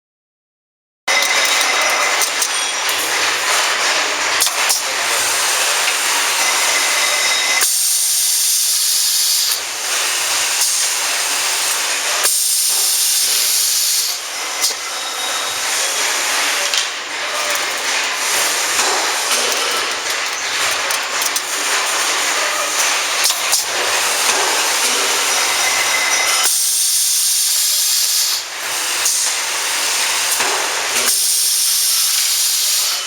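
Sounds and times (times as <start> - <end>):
machine hissing: 1.1 - 33.0.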